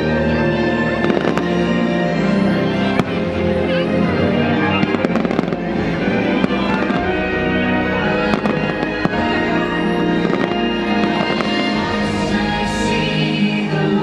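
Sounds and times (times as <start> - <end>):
loud show music: 0.0 - 14.0
fireworks bangs and crackles: 0.8 - 1.9, 2.8 - 3.8, 4.4 - 13.0.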